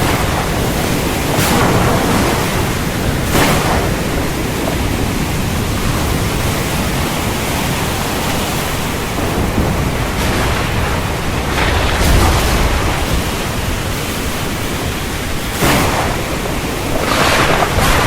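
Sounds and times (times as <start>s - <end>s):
heavy rain pouring: 0.0s - 18.0s
low rumble of thunder: 9.0s - 18.0s.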